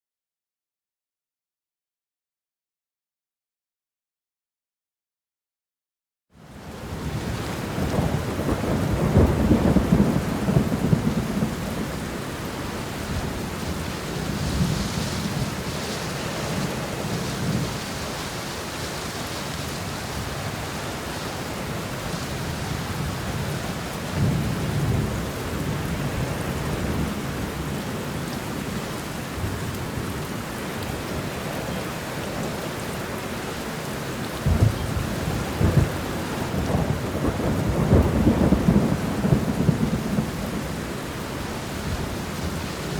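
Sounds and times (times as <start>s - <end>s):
steady rain falling: 6.4s - 42.9s
rolling thunder: 7.0s - 12.2s, 22.2s - 27.8s, 34.4s - 42.9s.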